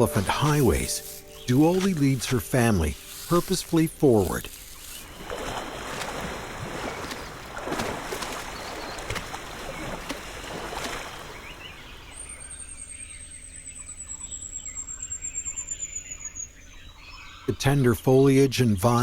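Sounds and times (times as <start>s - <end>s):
vegetation rustling and crackling: 0.0s - 12.3s.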